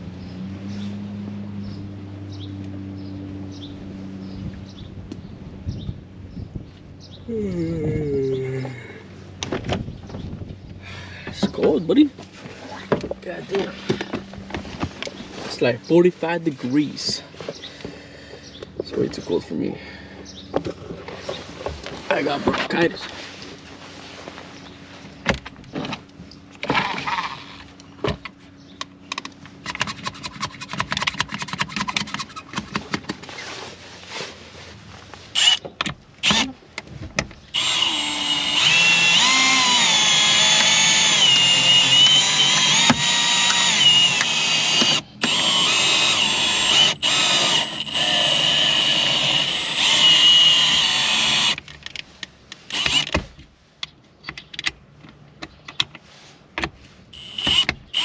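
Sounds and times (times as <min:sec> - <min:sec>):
handling clicks and knocks: 0:12.9 - 0:15.2, 0:27.7 - 0:33.3, 0:51.6 - 0:56.8
power tool running: 0:35.4 - 0:35.6, 0:36.2 - 0:36.5, 0:37.5 - 0:51.6, 0:52.7 - 0:53.2, 0:57.2 - 0:58.0.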